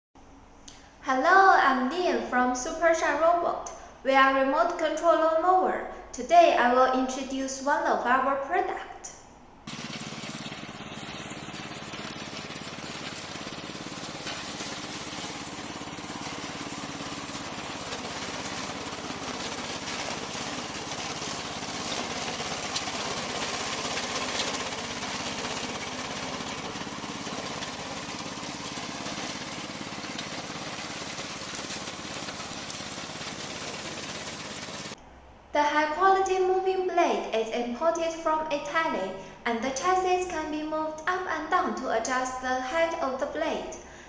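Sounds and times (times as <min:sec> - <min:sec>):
mower droning: 0:09.7 - 0:35.0.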